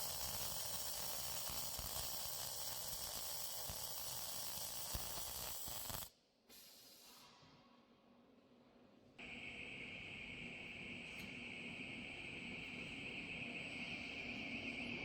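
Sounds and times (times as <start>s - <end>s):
welding arc crackling hiss: 0.0s - 7.4s.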